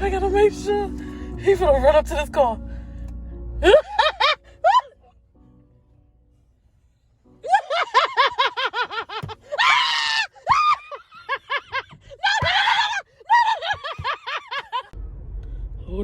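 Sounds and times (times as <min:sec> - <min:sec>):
women screaming: 0:09.5 - 0:11.4, 0:12.2 - 0:14.6.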